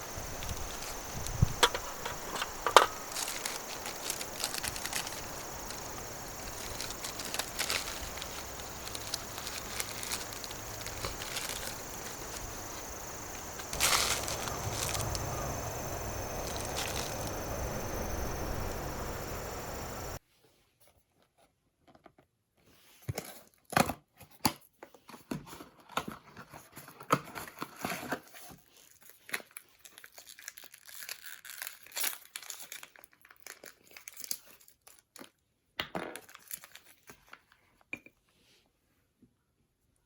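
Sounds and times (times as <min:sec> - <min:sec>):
campfire crackling and popping: 0:00.0 - 0:20.2
high-pitched insect drone: 0:00.0 - 0:20.2
rustling: 0:00.0 - 0:20.2.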